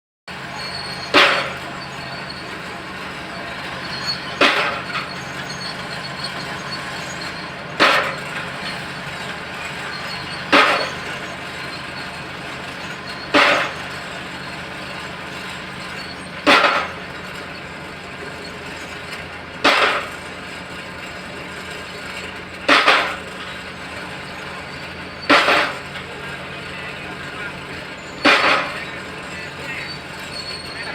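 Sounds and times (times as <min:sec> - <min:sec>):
bulldozer engine running: 0:00.3 - 0:30.9
loud crashing bangs: 0:09.7 - 0:11.6, 0:25.2 - 0:26.0, 0:27.3 - 0:29.1.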